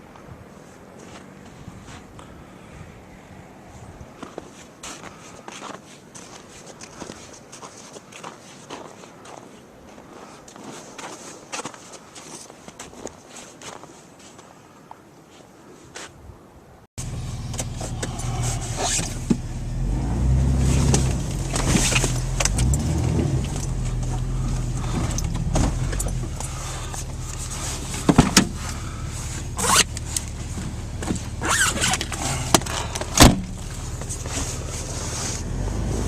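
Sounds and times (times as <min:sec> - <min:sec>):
vehicle engine in snow: 0:17.0 - 0:36.0.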